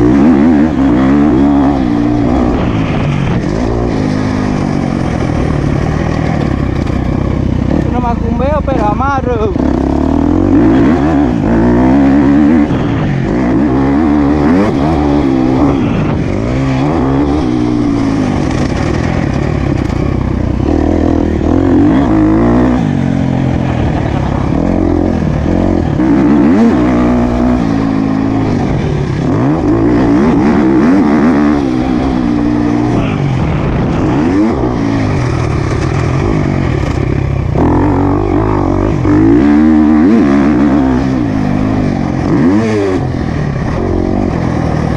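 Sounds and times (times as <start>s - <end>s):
motocross bike engine revving: 0.0s - 44.9s.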